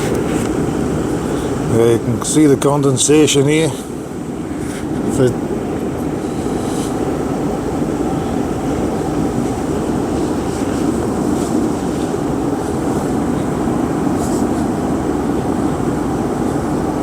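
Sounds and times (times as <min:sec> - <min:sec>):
heater blower rushing: 0:00.0 - 0:17.0
van engine running: 0:00.0 - 0:17.0.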